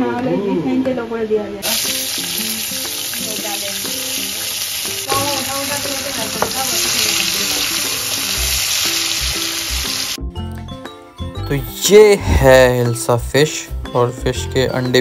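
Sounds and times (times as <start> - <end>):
onions sizzling in hot oil: 1.6 - 10.2.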